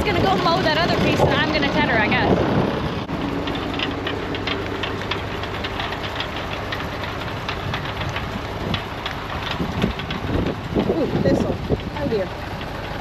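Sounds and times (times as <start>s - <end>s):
tractor engine running: 0.0s - 13.0s
light clicking and rattling: 3.0s - 13.0s.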